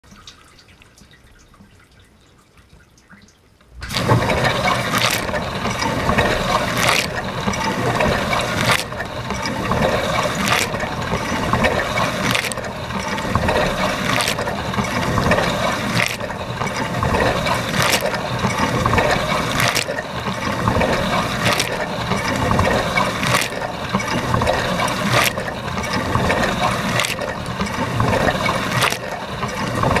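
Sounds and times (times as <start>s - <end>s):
faint dripping: 0.0s - 3.9s
dishwasher water jets spraying: 3.8s - 30.0s.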